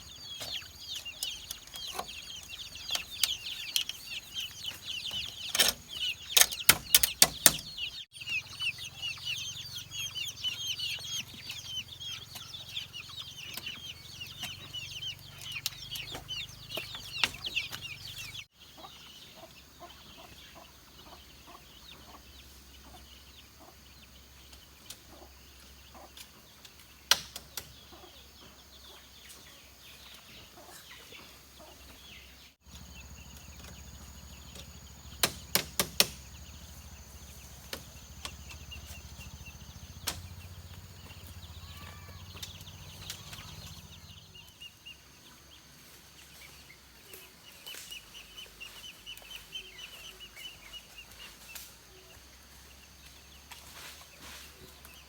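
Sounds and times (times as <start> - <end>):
chickens cheeping: 0.0 - 55.0
sharp clicks: 5.2 - 7.9, 34.4 - 36.5
sharp knocks: 35.2 - 36.5.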